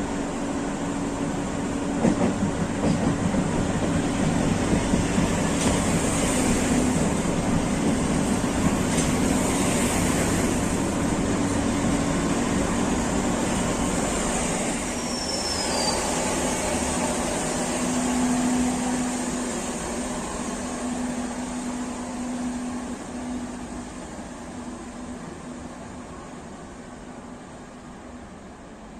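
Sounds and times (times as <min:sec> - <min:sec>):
train rumbling on rails: 0:00.0 - 0:28.9
high wheel squeal: 0:14.9 - 0:16.7.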